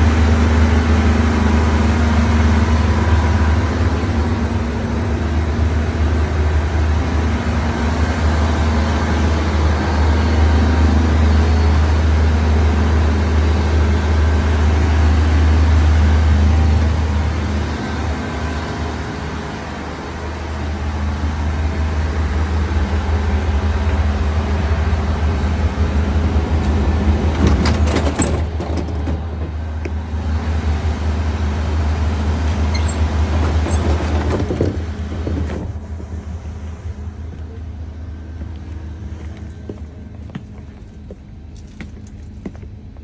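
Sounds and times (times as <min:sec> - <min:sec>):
train rumbling and rattling: 0:00.0 - 0:43.0
metal door clicks and clatter: 0:27.3 - 0:29.6.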